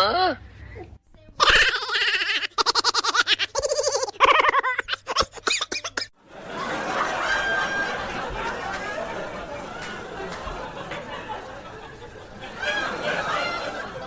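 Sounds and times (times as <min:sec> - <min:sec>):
high-pitched laughter: 0:01.4 - 0:06.2, 0:06.8 - 0:14.0
background hubbub with faint voices: 0:06.4 - 0:14.0.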